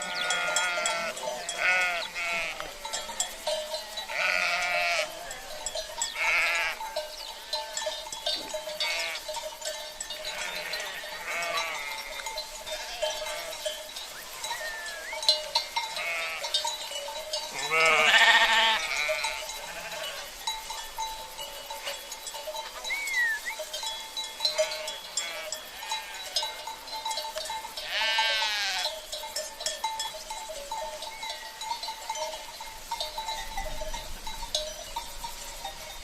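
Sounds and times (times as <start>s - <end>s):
sheep bleating: 0.0s - 2.8s, 3.9s - 6.8s, 8.8s - 9.2s, 10.2s - 13.8s, 14.5s - 15.3s, 15.9s - 16.6s, 17.5s - 20.3s, 24.5s - 26.6s, 27.8s - 28.9s
cowbells clinking: 0.0s - 36.0s.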